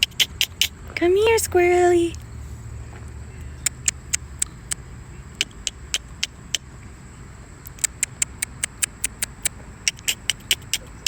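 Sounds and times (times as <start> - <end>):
person making mouth clicks: 3.6 - 4.8, 5.4 - 6.6, 7.6 - 11.0.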